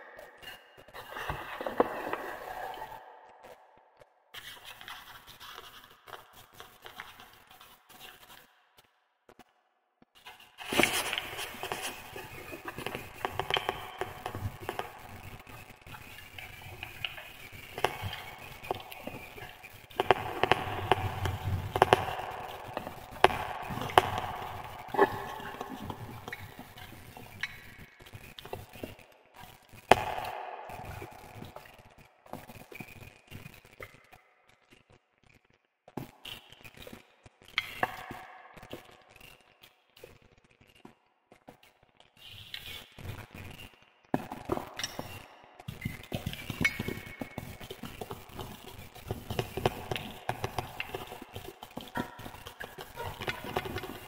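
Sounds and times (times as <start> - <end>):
wood fire crackling: 10.2 - 33.8, 44.2 - 54.0.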